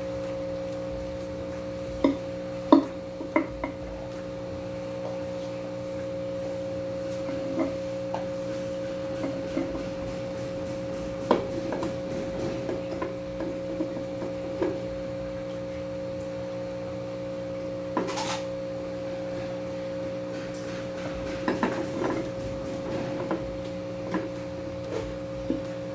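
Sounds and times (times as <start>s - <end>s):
steady hum: 0.0s - 25.9s
rocks rattling: 7.3s - 16.0s, 18.4s - 25.9s.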